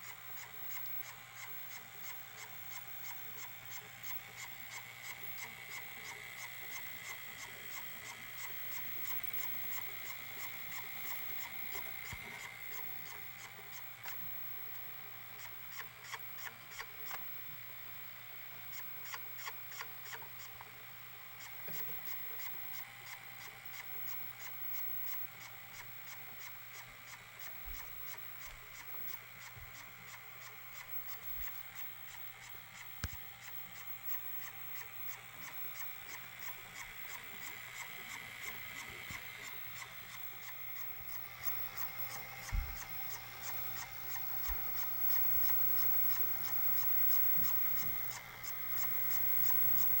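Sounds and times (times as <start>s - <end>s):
light regular ticking: 0.0s - 17.4s, 21.3s - 50.0s
tape machine mechanism hum: 0.0s - 50.0s
sharp click: 32.9s - 33.3s.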